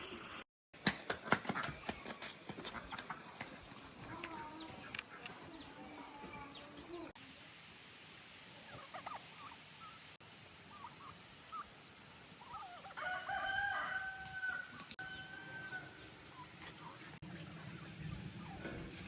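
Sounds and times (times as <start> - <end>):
rooster crowing: 12.9 - 16.1.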